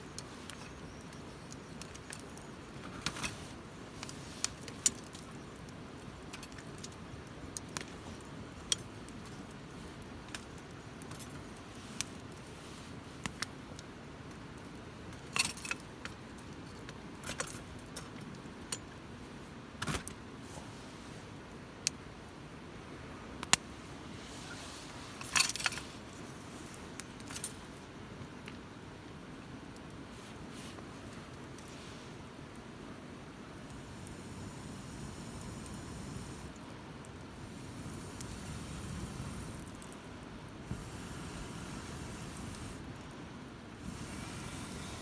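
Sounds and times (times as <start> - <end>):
campfire crackling and popping: 0.0 - 12.5, 23.4 - 23.7, 30.8 - 45.0
low rush of burning: 31.0 - 45.0.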